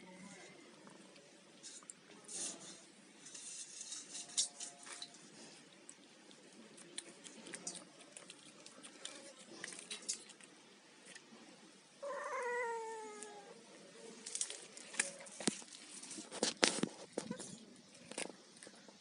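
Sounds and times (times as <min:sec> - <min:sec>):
cat chewing with wet smacks: 0:06.3 - 0:11.2.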